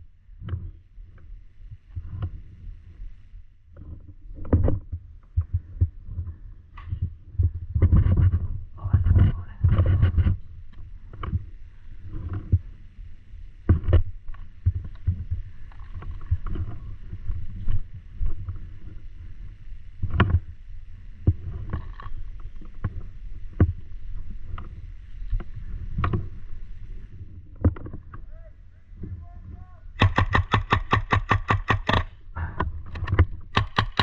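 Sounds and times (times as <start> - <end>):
steady low rumble: 0.0 - 34.0
paintball markers firing: 30.0 - 32.2, 33.0 - 34.0.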